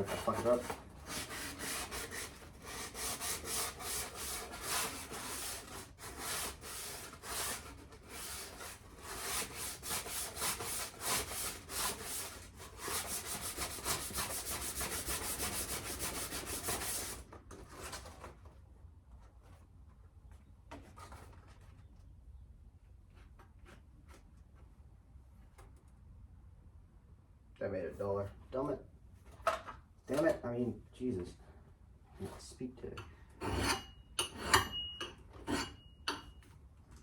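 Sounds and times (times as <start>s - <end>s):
axe edge being sharpened: 33.4s - 36.2s.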